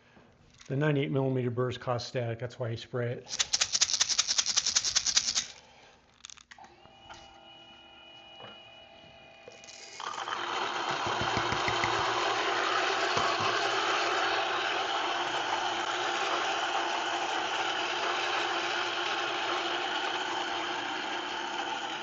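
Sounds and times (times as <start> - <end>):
coffee beans rattling in cup: 3.3 - 6.5, 9.6 - 14.2
coffee grinder grinding beans: 3.3 - 6.5, 9.5 - 22.0
grinder motor humming: 9.5 - 22.0.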